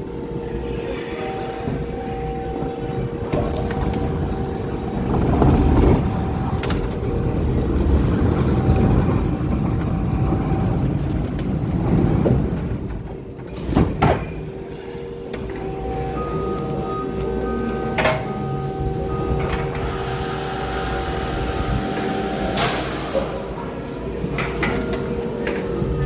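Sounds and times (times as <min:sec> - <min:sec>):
vehicle engine rumbling: 0:01.8 - 0:13.3.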